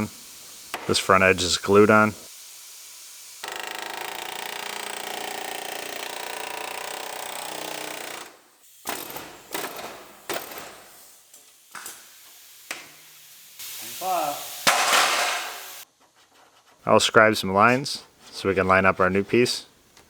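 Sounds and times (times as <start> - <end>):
power tool on sheet metal: 2.3 - 8.2.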